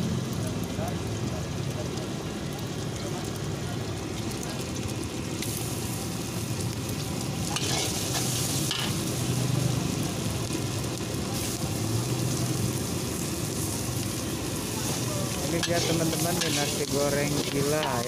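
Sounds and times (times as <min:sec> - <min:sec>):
egg sizzling in oil: 0:00.1 - 0:18.0
spatula scraping wok: 0:07.5 - 0:09.2, 0:14.8 - 0:18.0.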